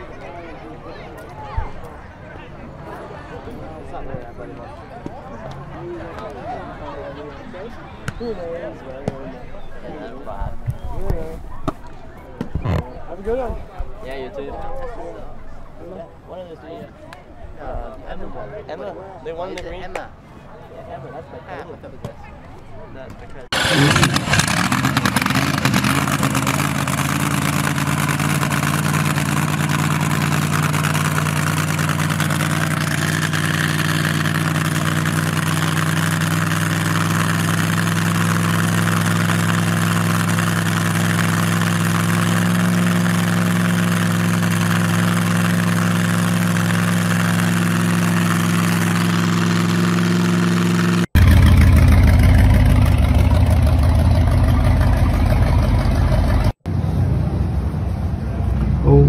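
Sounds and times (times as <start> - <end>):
choppy engine idle: 23.5 - 56.6
supercharged race engine idling: 23.5 - 56.6.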